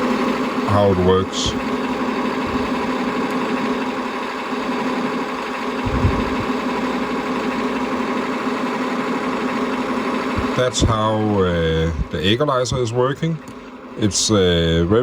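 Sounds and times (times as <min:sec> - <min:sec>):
truck engine idle through loudspeaker: 0:00.0 - 0:15.0
low thump: 0:05.8 - 0:06.7.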